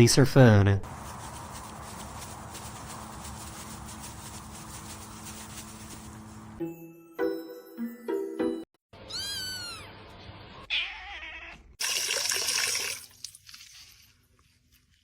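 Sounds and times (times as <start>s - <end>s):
cat meowing: 9.0s - 10.0s, 10.6s - 11.8s.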